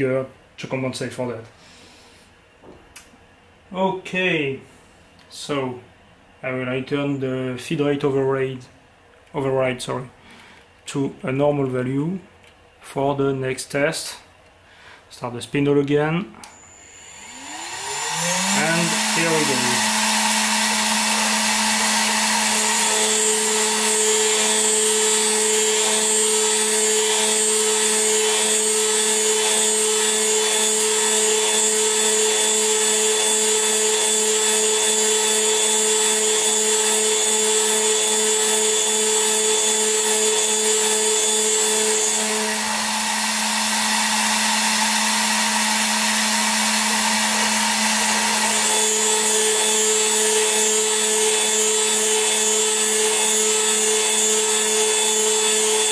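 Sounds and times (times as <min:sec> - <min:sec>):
cnc mill spindle hum: 0:16.5 - 0:55.9
high motor whine: 0:16.5 - 0:55.9.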